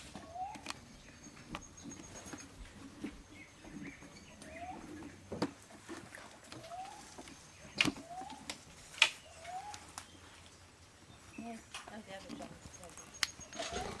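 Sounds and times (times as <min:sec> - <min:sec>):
bird rising call: 0:09.1 - 0:11.8, 0:12.5 - 0:14.0.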